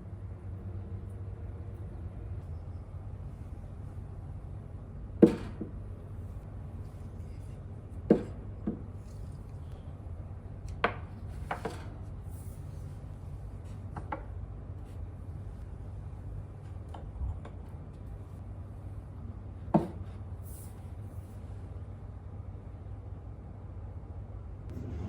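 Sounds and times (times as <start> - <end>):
range hood fan humming: 0.0 - 25.0.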